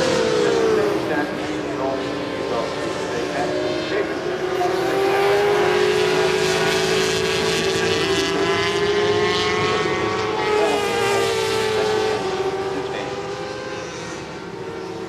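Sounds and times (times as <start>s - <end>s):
motorcycle engines at high revs: 0.0s - 15.0s.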